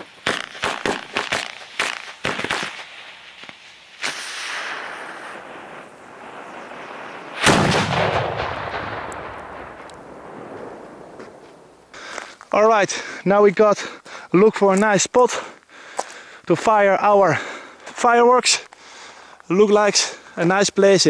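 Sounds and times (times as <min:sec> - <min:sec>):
firecracker bangs: 0:00.0 - 0:02.9, 0:04.0 - 0:11.8
fireworks boom echoing: 0:00.0 - 0:11.9.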